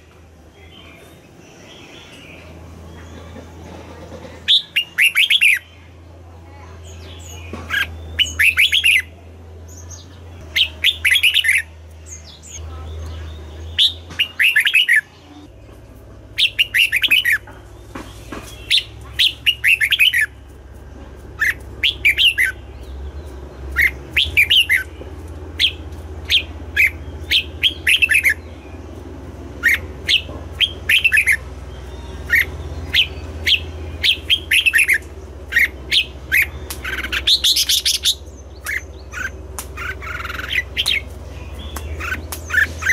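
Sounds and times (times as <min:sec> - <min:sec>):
bird singing whistled notes: 0:04.5 - 0:05.8, 0:06.9 - 0:09.1, 0:09.7 - 0:15.2, 0:16.4 - 0:17.4, 0:18.2 - 0:20.4, 0:21.4 - 0:25.0, 0:25.6 - 0:29.0, 0:29.6 - 0:42.9.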